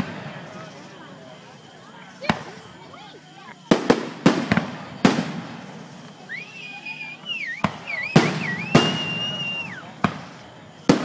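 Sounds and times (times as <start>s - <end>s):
fireworks booming: 0.0s - 1.4s, 2.0s - 11.0s
high wavering whistle: 6.2s - 10.0s.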